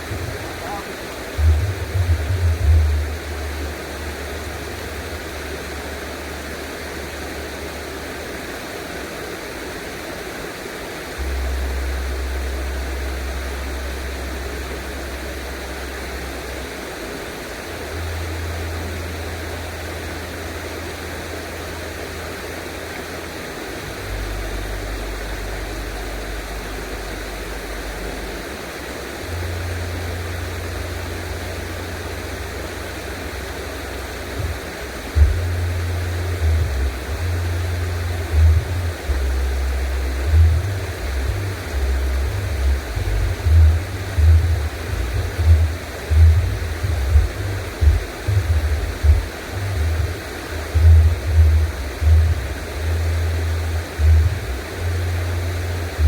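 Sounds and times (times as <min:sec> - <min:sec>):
water rushing: 0:00.0 - 0:56.0
deep low rumble: 0:01.3 - 0:07.2, 0:11.2 - 0:16.6, 0:29.2 - 0:56.0.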